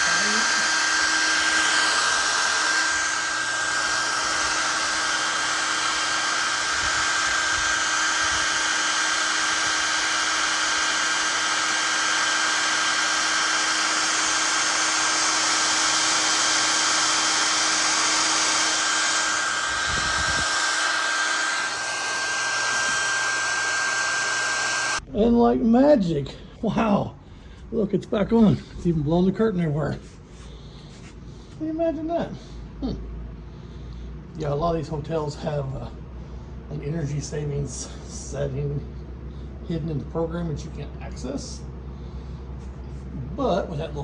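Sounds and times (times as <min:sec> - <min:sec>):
hair dryer running: 0:00.0 - 0:25.0.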